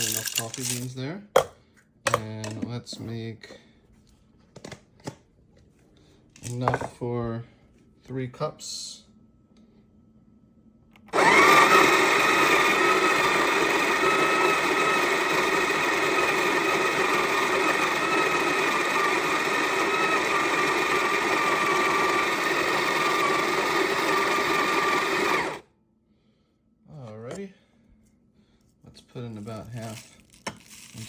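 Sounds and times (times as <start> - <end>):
electric coffee grinder whining: 11.1 - 25.6.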